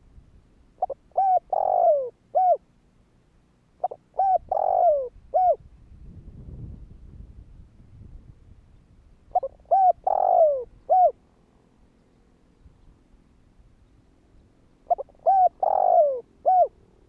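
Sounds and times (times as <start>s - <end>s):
dove cooing: 0.8s - 2.6s, 3.8s - 5.6s, 9.3s - 11.2s, 14.8s - 16.8s.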